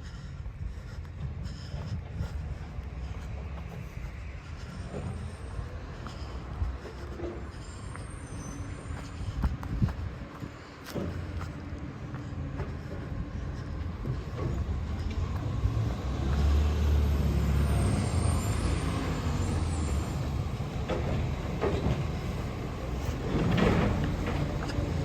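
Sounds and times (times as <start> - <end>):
garbage truck engine rumbling: 0.0 - 25.0
knocks and clatter: 20.4 - 25.0.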